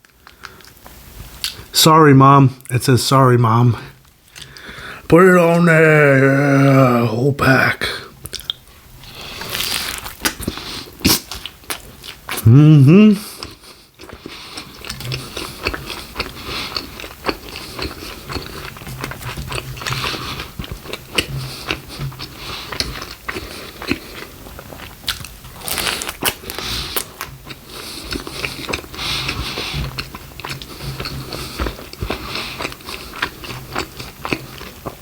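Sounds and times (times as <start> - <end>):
biting and chewing food: 8.2 - 12.4, 13.3 - 35.0
crisp crunches: 8.4 - 11.9, 24.8 - 27.3
wet mouth sounds: 9.3 - 24.3.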